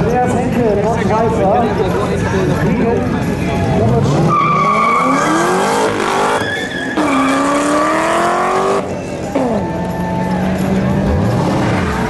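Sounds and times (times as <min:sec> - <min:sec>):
sports car accelerating: 0:02.7 - 0:12.0
tyre squeal: 0:04.0 - 0:08.1.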